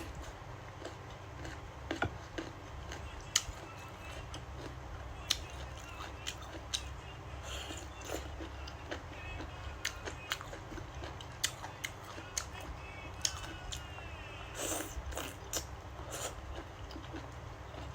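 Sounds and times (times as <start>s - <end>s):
person chewing food: 0.0s - 17.9s.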